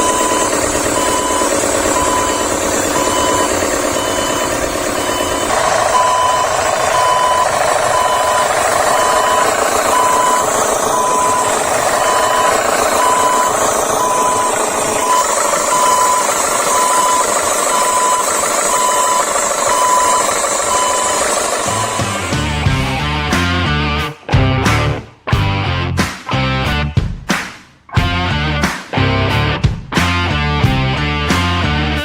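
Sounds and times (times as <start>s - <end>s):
reversing alarm beeping: 0.0s - 22.9s
vehicle engine running: 0.0s - 25.7s.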